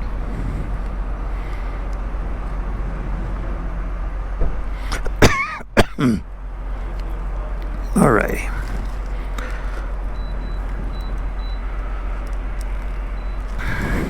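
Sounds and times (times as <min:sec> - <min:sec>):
person clearing throat: 0:05.2 - 0:06.2.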